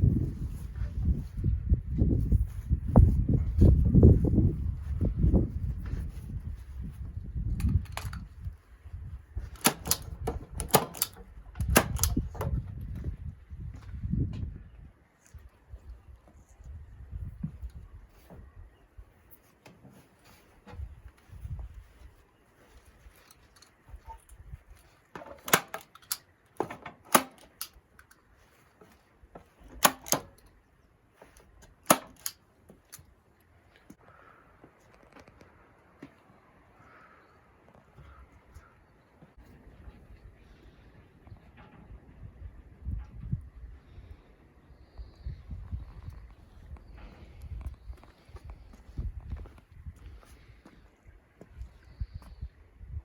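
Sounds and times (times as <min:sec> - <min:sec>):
sharp clicks in quick pairs: 0:09.6 - 0:12.4, 0:25.4 - 0:28.2, 0:29.8 - 0:30.5, 0:31.6 - 0:33.1.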